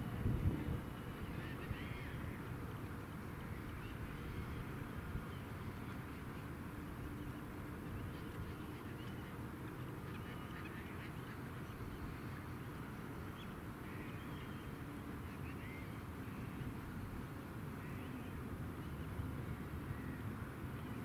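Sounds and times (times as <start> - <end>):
steady low rumble: 0.0 - 2.3.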